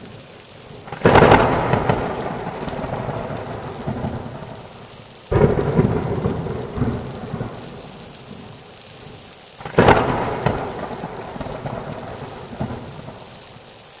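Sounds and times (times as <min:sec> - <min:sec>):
steady rain falling: 0:00.0 - 0:14.0
sharp thunderclap: 0:00.9 - 0:04.6, 0:05.3 - 0:07.9, 0:09.6 - 0:13.2
rumble of thunder: 0:00.9 - 0:04.7, 0:05.3 - 0:08.5, 0:09.6 - 0:13.3.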